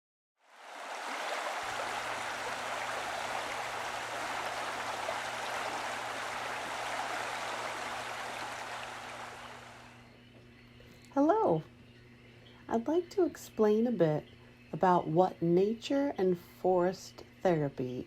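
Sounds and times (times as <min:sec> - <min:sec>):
running water rushing: 0:00.4 - 0:10.0
faint low hum: 0:00.8 - 0:16.2.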